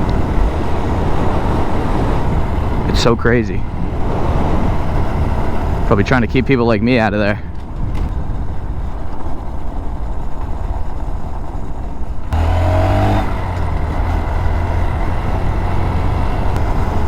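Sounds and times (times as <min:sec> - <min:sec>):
road and wind noise: 0:00.0 - 0:17.0
motorcycle engine revving: 0:12.1 - 0:17.0.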